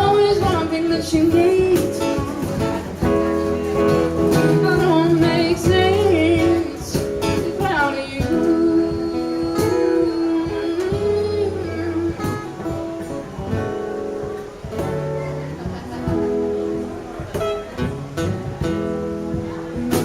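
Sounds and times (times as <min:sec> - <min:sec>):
person singing with vibrato: 0:00.0 - 0:02.4, 0:04.3 - 0:13.0
cajon beats: 0:00.0 - 0:20.0
strummed acoustic guitar: 0:00.0 - 0:20.0.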